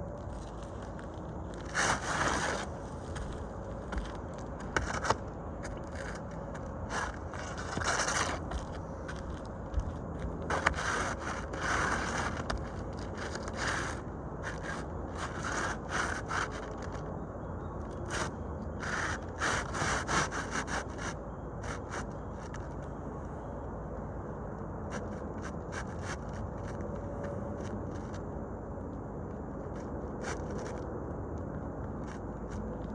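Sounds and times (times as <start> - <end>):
steady background noise: 0.0 - 32.9
scraping on roof shingles: 0.2 - 17.0, 18.0 - 22.8.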